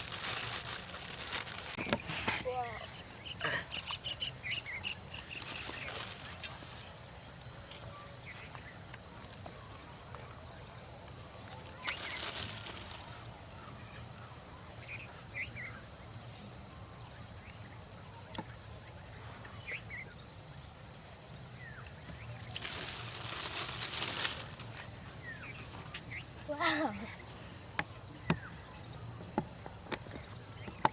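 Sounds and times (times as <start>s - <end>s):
crickets chirping: 0.0s - 30.9s.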